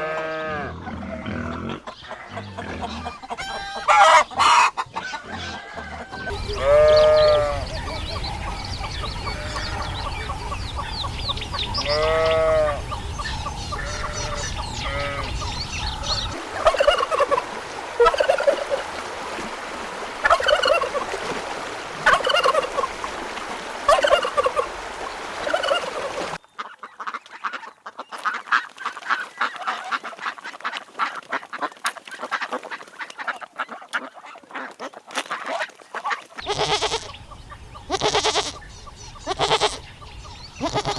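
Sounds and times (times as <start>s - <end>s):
poultry calling: 0.0s - 18.8s, 20.2s - 21.1s, 22.0s - 23.0s, 23.9s - 24.8s, 25.4s - 28.4s, 36.4s - 40.9s.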